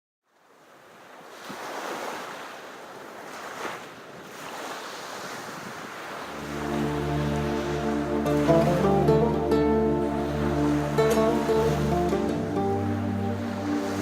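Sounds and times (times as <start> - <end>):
sea waves washing in: 0.4 - 14.0
music: 6.3 - 14.0.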